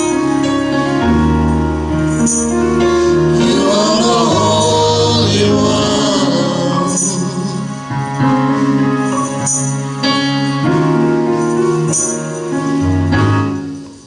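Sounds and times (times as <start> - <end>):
held bass notes: 0.0 - 14.0
gospel singing: 2.1 - 12.2.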